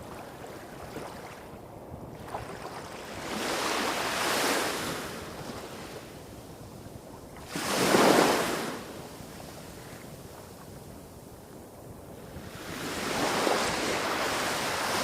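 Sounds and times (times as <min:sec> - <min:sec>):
small waves breaking on shore: 0:00.0 - 0:06.3, 0:07.4 - 0:10.0.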